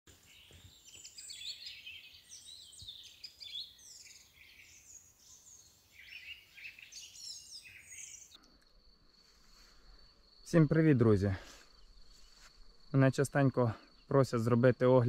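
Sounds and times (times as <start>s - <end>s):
songbirds chirping and singing: 0.1s - 8.6s.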